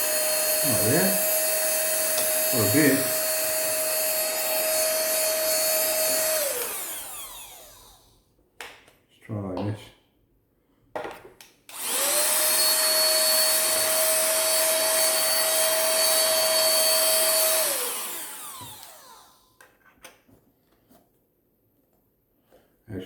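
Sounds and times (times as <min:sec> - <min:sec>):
handheld vacuum cleaner whine: 0:00.0 - 0:08.2, 0:11.7 - 0:19.6.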